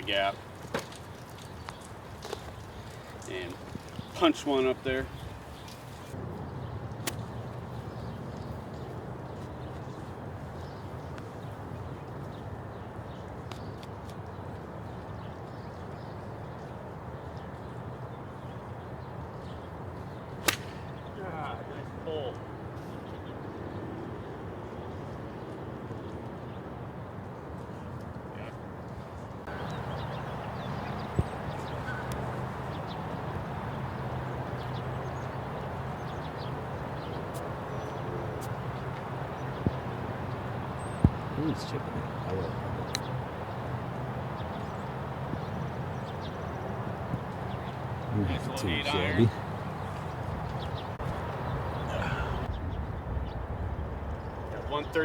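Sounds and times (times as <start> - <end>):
wind rumble on microphone: 1.4 - 4.2, 29.5 - 55.0
faint bird chirps: 29.5 - 33.0
golf cart humming: 29.5 - 52.5.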